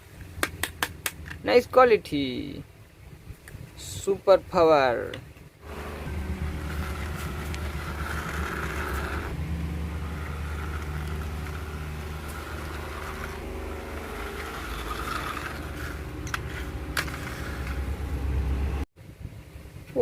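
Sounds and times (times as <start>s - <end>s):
low steady hum: 0.0s - 19.9s.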